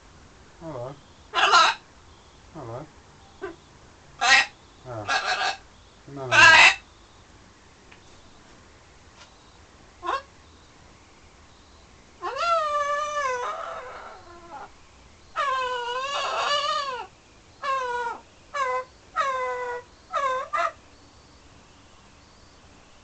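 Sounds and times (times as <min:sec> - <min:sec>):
macaw calling loudly: 0:01.3 - 0:01.8, 0:04.2 - 0:06.9, 0:15.3 - 0:20.8.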